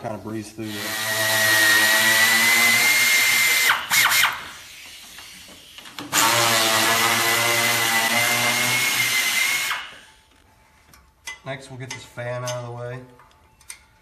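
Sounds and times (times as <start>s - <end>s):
air tool whining: 0.6s - 10.2s.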